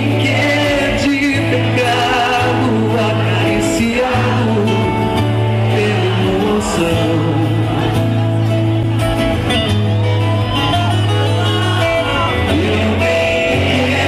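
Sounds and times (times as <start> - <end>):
person singing: 0.0 - 8.2, 11.4 - 14.0
bass guitar: 0.0 - 14.0
guitar: 0.0 - 14.0.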